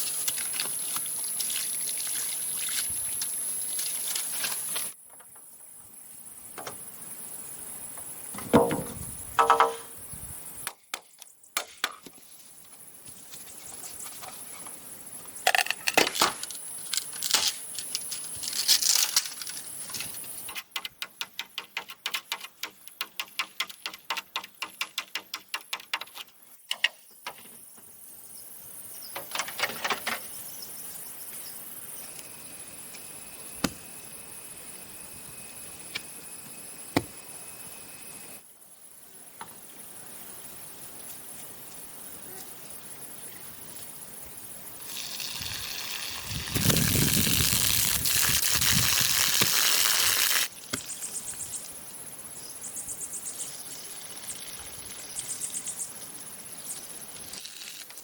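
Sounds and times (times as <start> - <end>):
ringing knock: 8.5 - 10.0.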